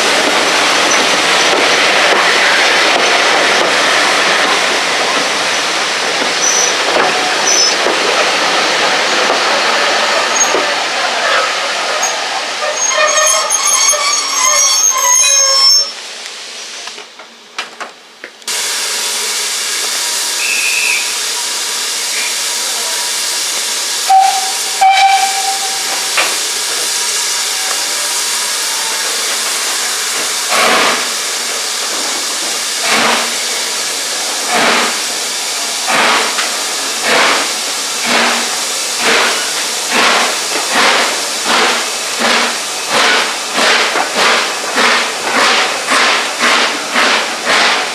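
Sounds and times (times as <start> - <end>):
steam hissing: 0.0 - 17.0, 18.5 - 47.9
locomotive whistle: 12.0 - 16.0, 20.2 - 23.1, 24.0 - 26.3, 27.4 - 29.8
steam locomotive exhaust beats: 18.5 - 47.9.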